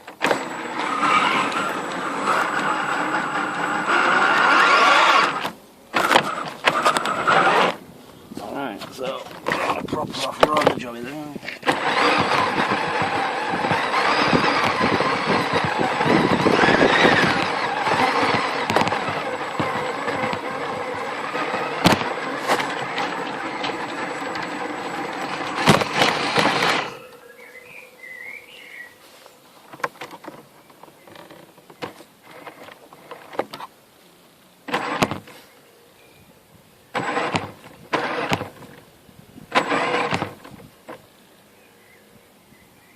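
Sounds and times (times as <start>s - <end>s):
toy truck electric motor whining: 0.1s - 7.8s, 11.6s - 27.2s, 31.0s - 33.7s, 34.6s - 35.4s, 36.9s - 38.8s, 39.5s - 41.0s.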